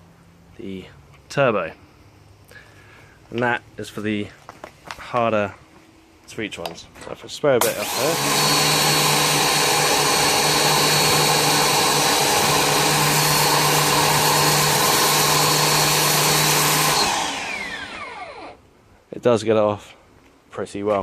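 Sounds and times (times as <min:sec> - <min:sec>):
pressure washer motor hum: 0:07.6 - 0:18.6.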